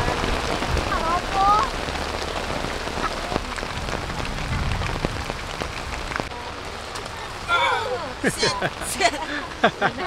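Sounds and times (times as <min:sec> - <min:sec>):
sharp taps of raindrops: 0:00.0 - 0:07.2
heavy rain falling: 0:00.0 - 0:10.0.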